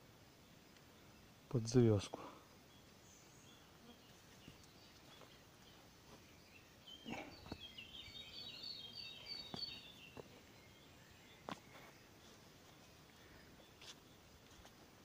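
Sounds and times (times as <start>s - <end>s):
high bird chirps: 2.8s - 11.9s.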